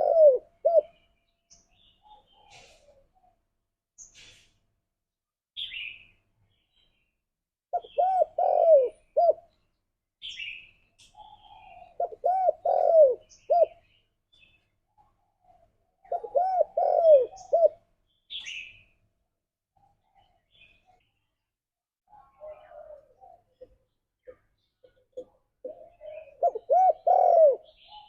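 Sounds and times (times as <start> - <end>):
dove cooing: 0.0 - 1.0, 2.0 - 3.2, 7.8 - 9.5, 11.2 - 13.8, 15.4 - 17.8, 22.1 - 28.0.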